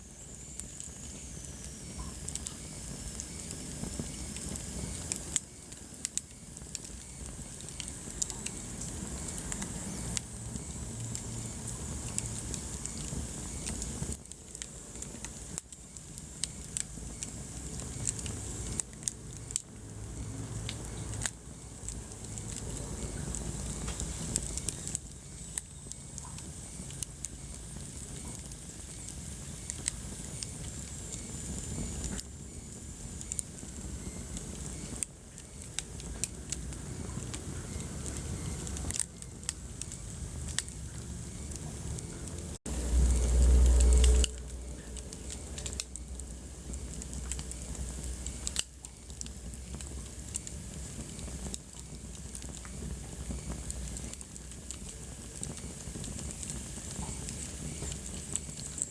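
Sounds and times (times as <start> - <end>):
faint high hiss: 0.0 - 58.9
wood fire crackling and popping: 0.0 - 58.9
low rumble: 39.6 - 48.5.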